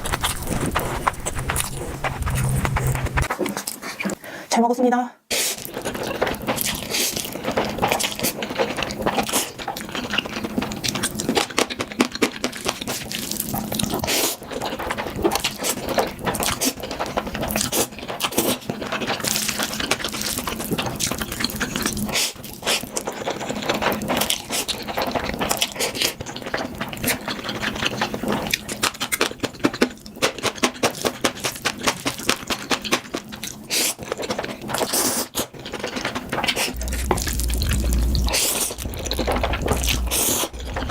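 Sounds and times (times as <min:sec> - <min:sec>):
wet chewing and mouth smacks: 0:00.0 - 0:03.8
crunchy clicks: 0:36.7 - 0:40.9.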